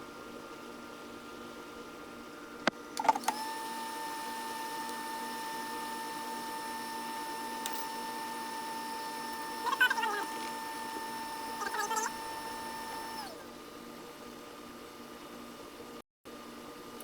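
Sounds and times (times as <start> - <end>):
small motor whining: 3.0 - 13.5.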